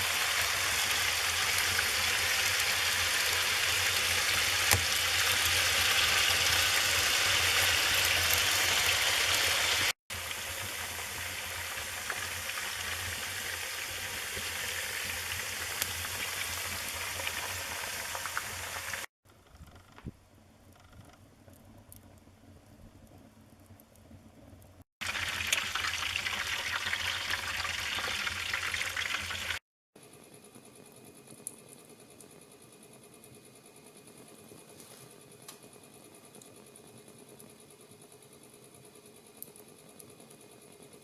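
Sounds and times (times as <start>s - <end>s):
wood fire crackling: 0.0s - 9.0s, 10.2s - 26.4s.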